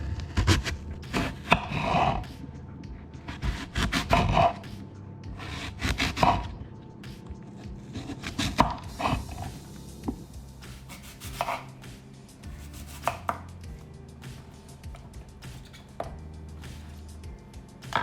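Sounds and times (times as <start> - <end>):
knife scraping: 0.0 - 2.3, 7.9 - 9.6, 10.6 - 11.8, 12.5 - 13.5, 15.4 - 16.2.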